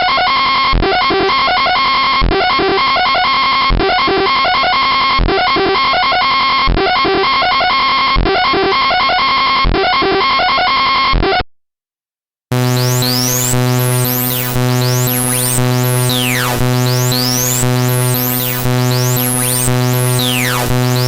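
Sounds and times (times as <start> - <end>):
buzzy electronic pattern: 12.5 - 21.0
droning chord with pitch glides: 12.5 - 21.0.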